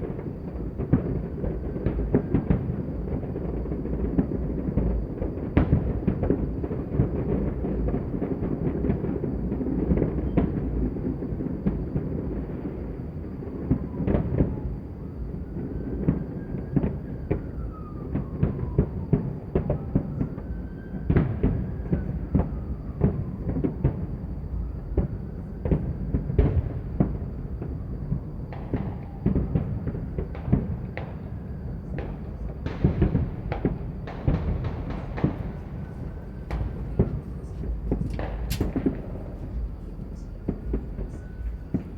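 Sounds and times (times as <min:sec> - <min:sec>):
distant fireworks rumble: 0:00.0 - 0:41.9
sharp firecracker cracks: 0:33.0 - 0:41.9
faint whistling tones: 0:34.1 - 0:41.9.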